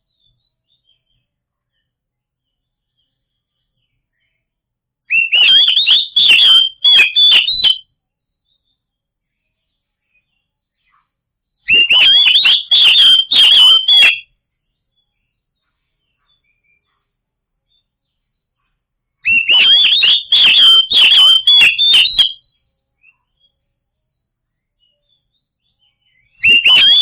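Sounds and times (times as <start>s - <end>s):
bird singing whistled notes: 5.1s - 7.8s, 11.7s - 15.0s, 19.2s - 23.6s, 24.5s - 27.0s.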